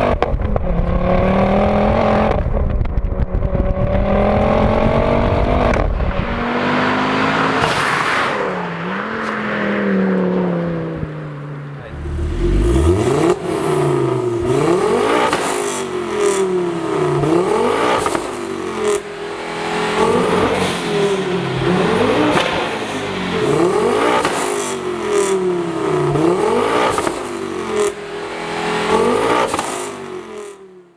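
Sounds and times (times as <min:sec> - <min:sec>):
car engine revving hard: 0:04.0 - 0:09.2, 0:10.2 - 0:30.6
short sharp engine pops: 0:15.2 - 0:15.8.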